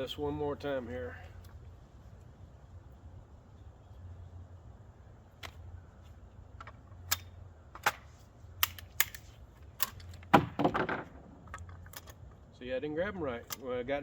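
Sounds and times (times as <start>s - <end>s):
shotgun action clicking: 8.6s - 10.3s.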